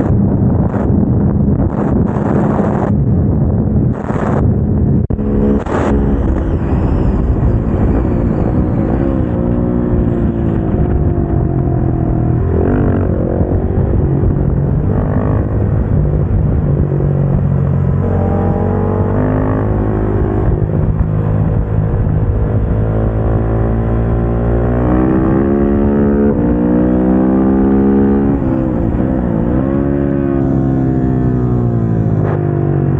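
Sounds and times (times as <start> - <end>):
motorcycle engine revving: 3.9 - 32.9.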